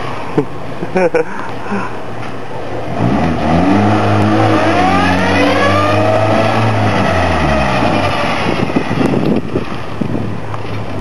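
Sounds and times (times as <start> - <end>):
car engine accelerating: 2.7 - 9.8.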